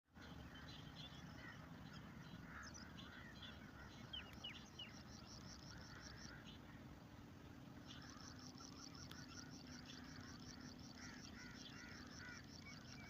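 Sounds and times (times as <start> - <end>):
birds chirping: 0.1 - 13.0
low steady rumble: 0.2 - 13.0.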